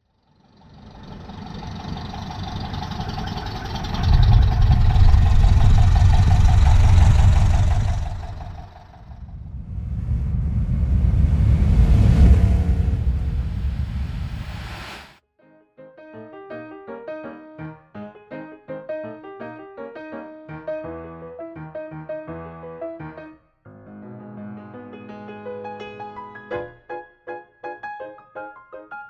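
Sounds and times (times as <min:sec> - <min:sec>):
car engine revving: 0:00.4 - 0:15.2
faint steady whine: 0:03.8 - 0:15.2.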